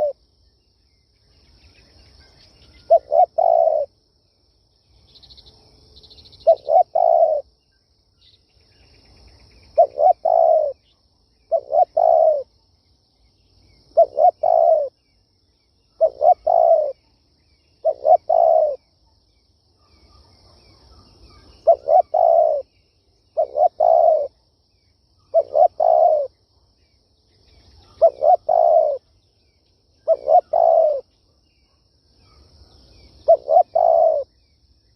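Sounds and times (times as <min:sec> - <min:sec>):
dove cooing: 0:00.0 - 0:00.2, 0:02.9 - 0:03.9, 0:06.4 - 0:07.4, 0:09.8 - 0:10.8, 0:11.5 - 0:12.5, 0:14.0 - 0:15.0, 0:16.0 - 0:17.0, 0:17.8 - 0:18.8, 0:21.6 - 0:22.7, 0:23.4 - 0:24.4, 0:25.3 - 0:26.3, 0:27.8 - 0:29.1, 0:30.0 - 0:31.0, 0:33.2 - 0:34.3.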